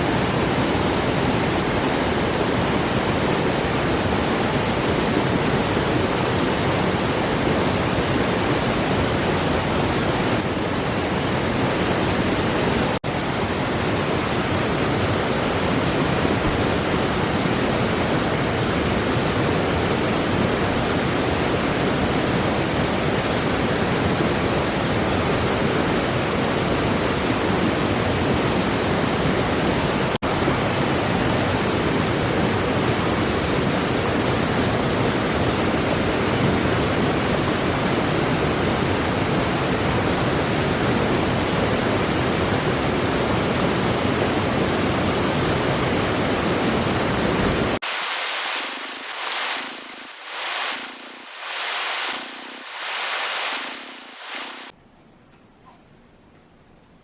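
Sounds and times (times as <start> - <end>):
steady rushing noise: 47.6 - 54.7.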